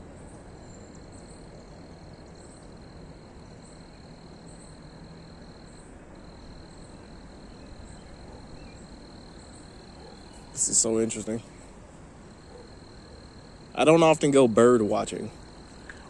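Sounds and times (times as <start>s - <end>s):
insects trilling: 0.0s - 16.0s
short high insect chirp: 0.6s - 14.3s.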